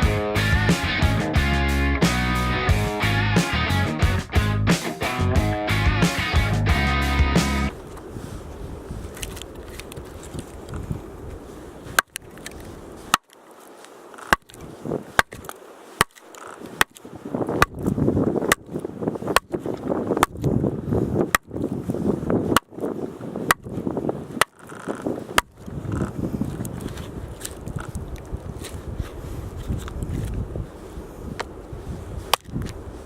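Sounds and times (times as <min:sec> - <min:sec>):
axe chopping firewood: 0:13.1 - 0:13.4, 0:15.2 - 0:16.2, 0:23.5 - 0:23.7.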